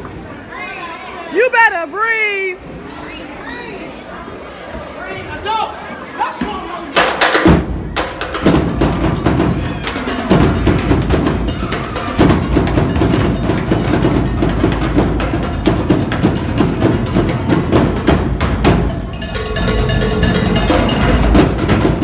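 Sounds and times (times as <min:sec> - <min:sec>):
drumline percussion cadence: 0:06.9 - 0:22.0.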